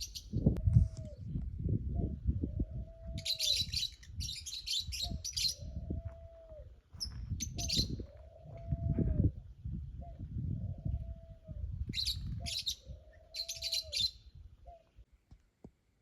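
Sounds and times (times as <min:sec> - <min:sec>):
small birds chirping: 0:03.2 - 0:05.9, 0:06.9 - 0:08.6, 0:11.9 - 0:15.0.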